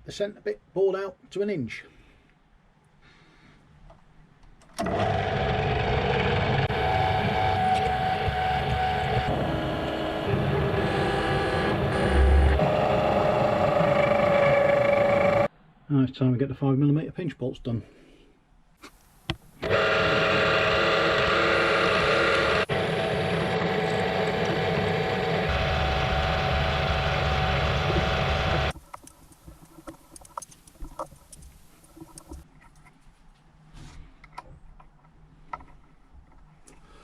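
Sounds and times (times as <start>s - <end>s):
drilling machine running: 4.8s - 15.5s, 19.6s - 28.7s
faint clicks and handling: 28.7s - 33.5s.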